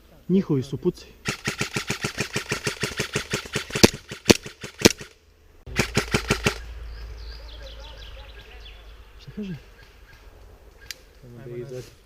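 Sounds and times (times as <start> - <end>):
airsoft guns firing bursts: 1.2 - 5.1, 5.7 - 6.6
louder single shots: 1.2 - 6.7.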